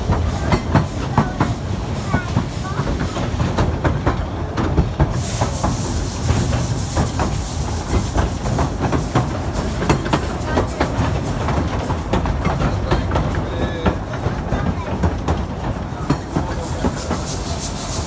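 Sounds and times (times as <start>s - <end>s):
train rumble: 0.0s - 18.0s
train wheels clacking over rail joints: 0.0s - 18.0s
hiss: 5.0s - 12.6s, 15.8s - 18.0s.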